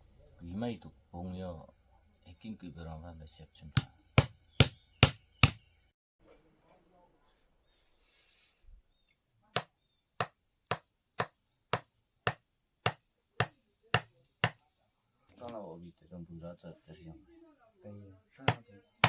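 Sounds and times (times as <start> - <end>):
hammer strikes: 3.8 - 5.6, 9.6 - 14.6.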